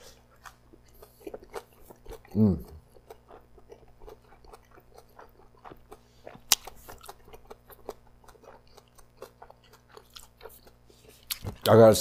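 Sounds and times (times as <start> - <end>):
wet chewing mouth clicks: 0.4 - 11.7.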